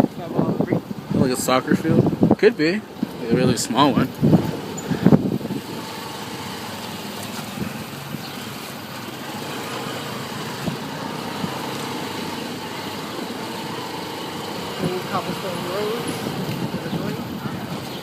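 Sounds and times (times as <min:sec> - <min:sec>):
road and wind noise: 0:00.0 - 0:18.0
motorcycle engine running: 0:03.0 - 0:18.0.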